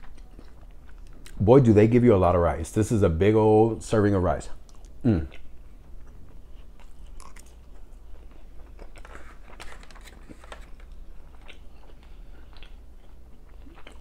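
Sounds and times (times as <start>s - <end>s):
chewing with wet mouth clicks: 0.0s - 1.4s, 4.6s - 9.0s, 11.3s - 14.0s
low steady hum: 0.0s - 14.0s.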